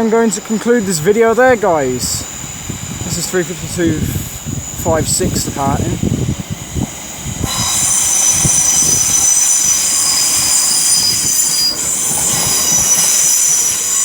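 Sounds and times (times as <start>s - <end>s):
train low rumble: 0.0s - 14.0s
train wheels squealing: 7.0s - 14.0s.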